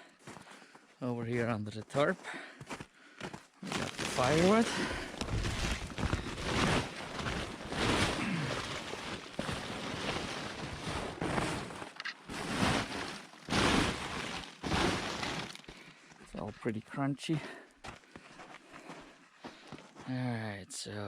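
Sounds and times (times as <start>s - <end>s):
frozen tarp crinkling: 3.6s - 16.5s.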